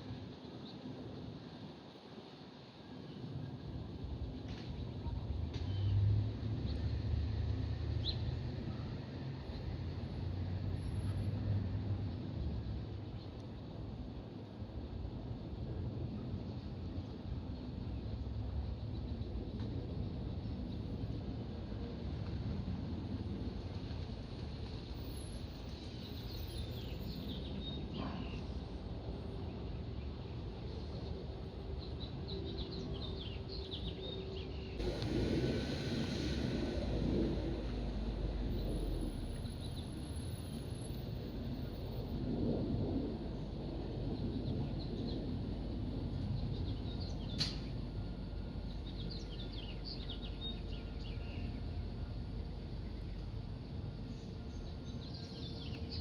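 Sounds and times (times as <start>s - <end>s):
low steady rumble: 34.7s - 56.0s.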